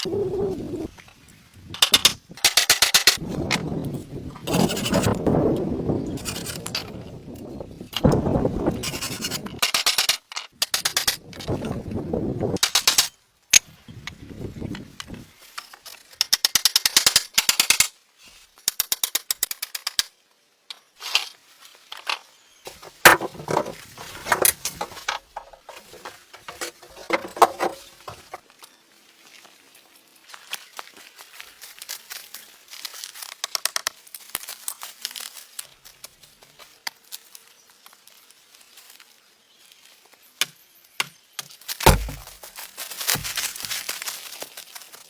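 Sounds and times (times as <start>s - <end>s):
wood scraping and rubbing: 4.5s - 5.2s, 22.7s - 28.4s, 41.8s - 42.4s
knocks on wood: 22.7s - 28.4s, 41.9s - 42.4s.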